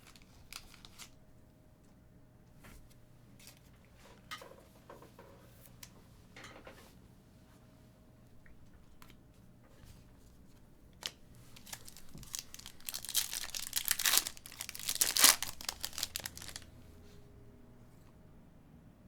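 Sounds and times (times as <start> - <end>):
card pack wrapper tearing: 0.0 - 1.1, 11.0 - 16.7.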